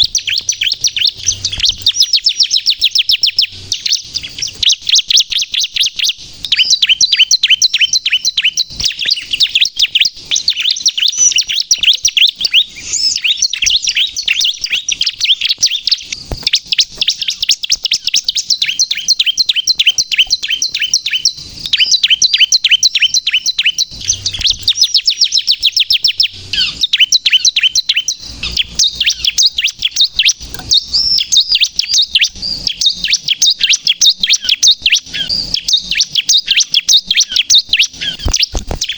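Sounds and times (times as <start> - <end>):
bird singing high chirps: 0.0 - 38.9.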